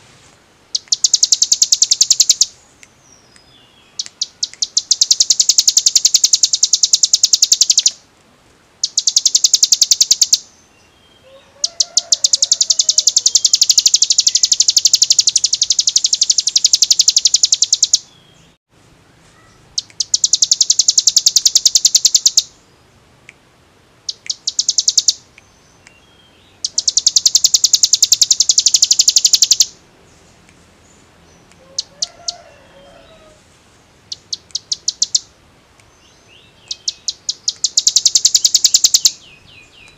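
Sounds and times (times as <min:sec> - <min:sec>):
bird rattling trills: 0:00.7 - 0:02.5, 0:04.2 - 0:08.0, 0:12.0 - 0:18.0, 0:26.7 - 0:29.7, 0:36.8 - 0:39.1
faint lower bird call: 0:08.8 - 0:22.6.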